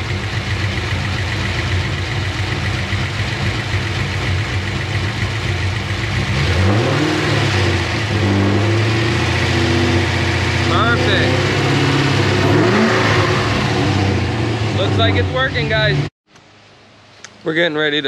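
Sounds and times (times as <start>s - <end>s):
car engine idling and revving: 0.0s - 16.7s.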